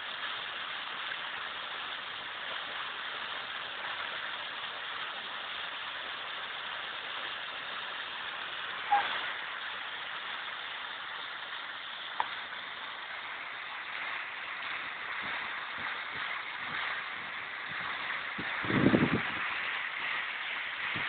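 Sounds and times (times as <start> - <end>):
waterfall cascading: 0.0 - 21.0.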